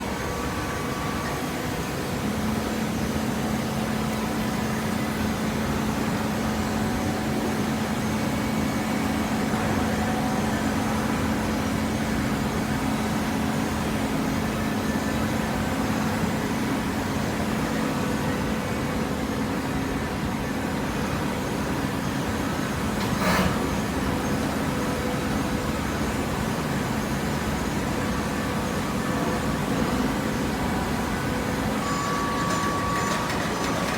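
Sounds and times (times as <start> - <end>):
hydraulic pump humming: 21.0 - 33.9
mechanical noise: 22.6 - 24.6, 30.1 - 33.9.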